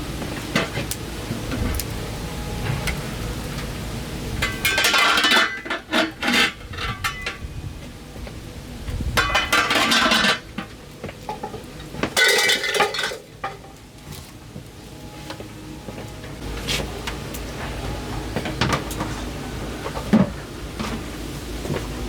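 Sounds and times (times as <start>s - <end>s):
pots and dishes clattering: 4.4s - 7.4s, 9.2s - 13.8s.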